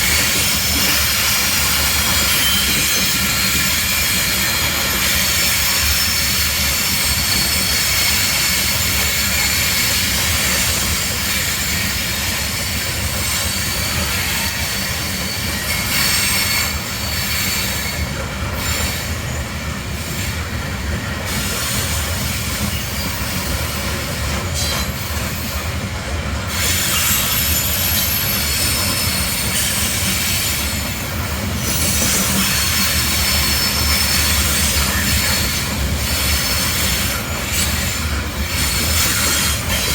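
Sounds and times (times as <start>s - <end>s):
low rumble of train: 0.0s - 39.9s
train wheels squealing on rails: 0.0s - 39.9s.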